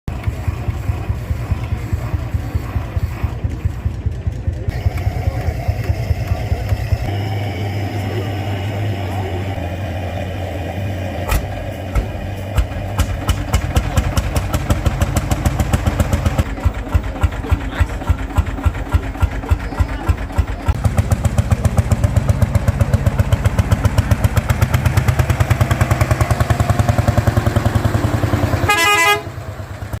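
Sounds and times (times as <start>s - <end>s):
tractor engine running: 0.1s - 30.0s
loud tonal blare: 4.7s - 12.5s.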